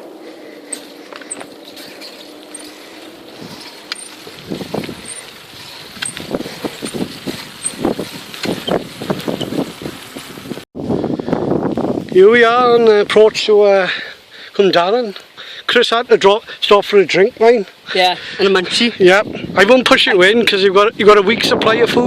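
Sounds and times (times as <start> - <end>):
rumbling and buffeting: 0.0 - 13.5
bicycle rolling noise: 0.0 - 14.5.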